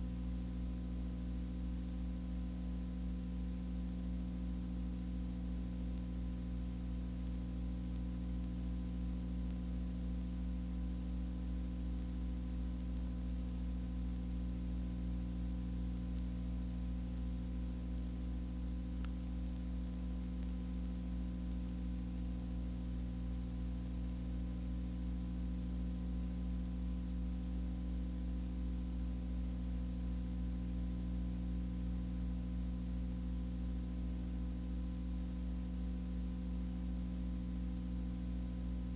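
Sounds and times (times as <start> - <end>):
electrical hum with hiss: 0.0 - 38.9
faint tick: 5.8 - 6.6, 7.6 - 9.9, 15.8 - 24.2.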